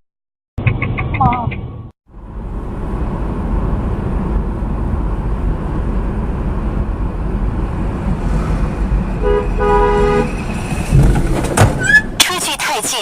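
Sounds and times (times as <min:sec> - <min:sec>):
car road and engine rumble: 0:00.6 - 0:13.0
car horn honking: 0:09.1 - 0:10.5.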